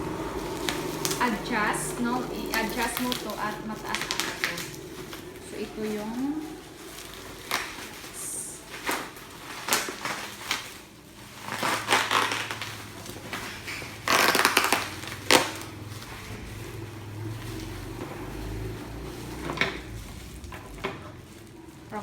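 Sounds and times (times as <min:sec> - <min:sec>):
low hum: 0:00.0 - 0:08.6
rustling scrape: 0:00.0 - 0:22.0.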